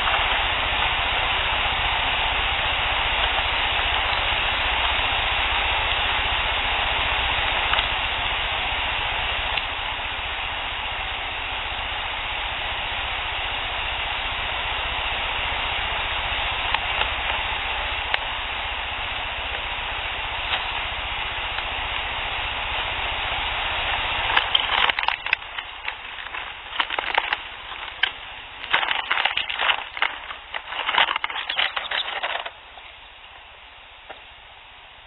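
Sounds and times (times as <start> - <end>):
steady hiss: 0.0 - 35.0
small animal crackling and rustling: 23.9 - 34.2.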